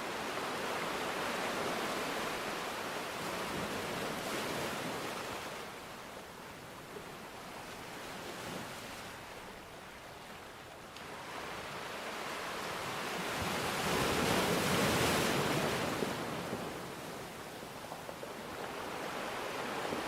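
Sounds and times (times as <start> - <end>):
surf washing in: 11.1 - 20.0.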